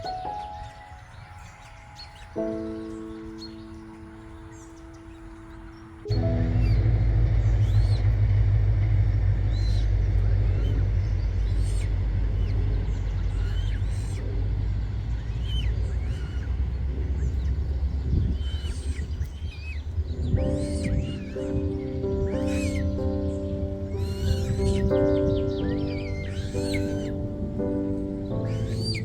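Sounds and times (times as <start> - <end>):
high bird chirps: 0.0 - 8.2, 18.3 - 29.0
steady low rumble: 5.2 - 29.0.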